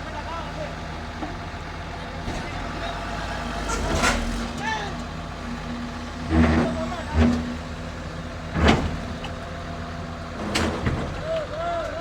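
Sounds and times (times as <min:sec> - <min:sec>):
diesel engines of heavy machinery: 0:00.0 - 0:12.0.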